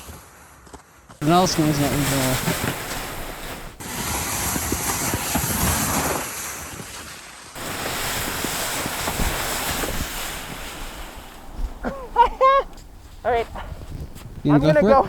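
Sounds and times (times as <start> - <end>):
wind buffeting microphone: 7.6 - 15.0.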